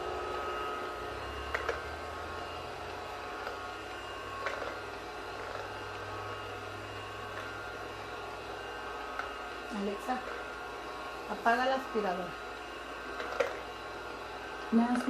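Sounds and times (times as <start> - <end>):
vacuum cleaner humming: 0.0 - 15.0.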